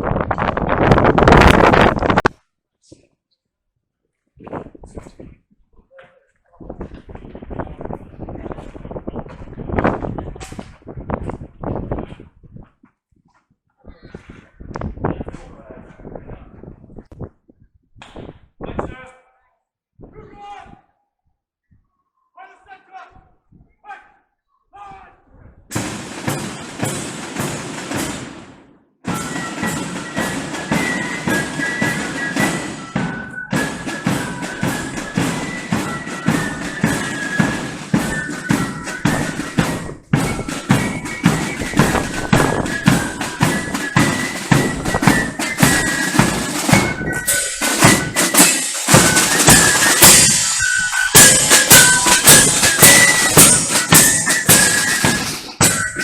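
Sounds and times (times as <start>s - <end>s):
side drums and bass drum: 25.7s - 56.0s
flutes playing high melody: 29.1s - 56.0s.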